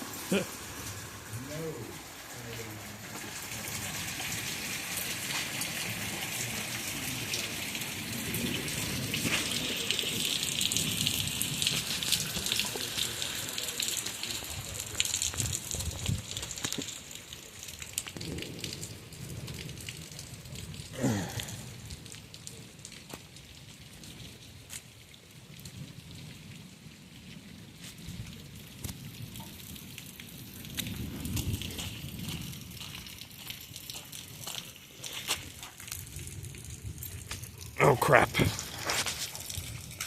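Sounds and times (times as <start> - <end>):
rain hissing: 0.0 - 40.0
hailstones hitting: 8.0 - 23.7, 27.9 - 40.0.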